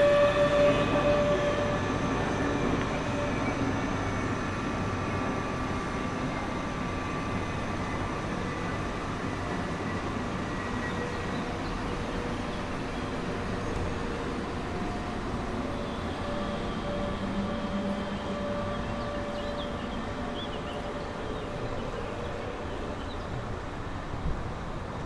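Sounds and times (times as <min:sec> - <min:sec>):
train rumbling along tracks: 0:00.0 - 0:25.0.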